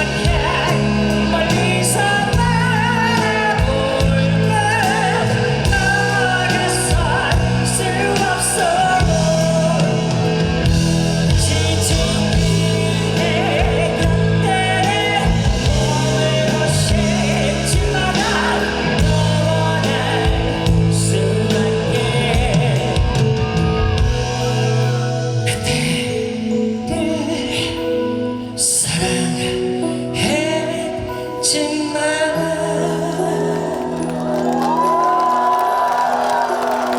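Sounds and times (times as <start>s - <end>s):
rock band playing: 0.0s - 27.2s
person singing: 0.0s - 36.9s.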